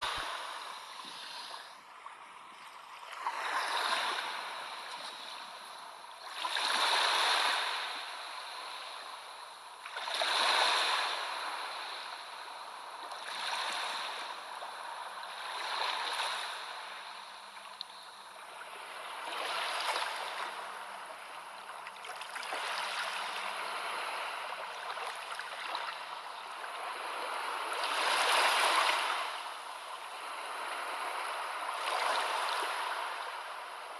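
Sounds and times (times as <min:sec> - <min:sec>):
sea waves washing in: 0:00.0 - 0:05.6, 0:18.2 - 0:33.9.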